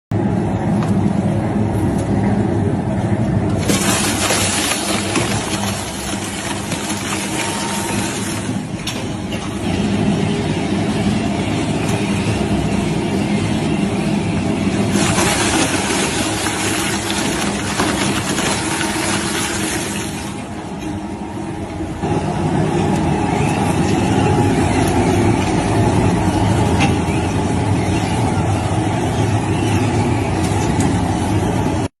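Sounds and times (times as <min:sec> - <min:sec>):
shredder machine humming: 0:03.5 - 0:09.3, 0:14.6 - 0:20.7.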